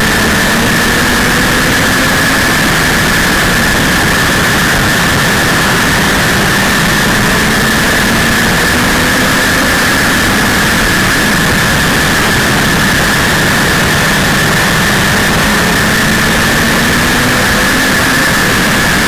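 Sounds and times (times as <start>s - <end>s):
high whine: 0.0s - 19.0s
race car engine running hard: 0.0s - 19.0s
wind and road noise: 0.0s - 19.0s.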